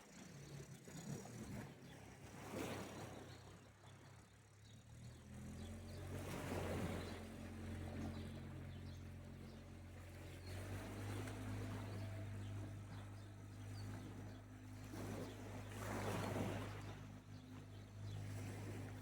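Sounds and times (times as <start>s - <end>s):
engine humming: 5.0s - 19.0s
sea waves washing on shore: 6.0s - 19.0s.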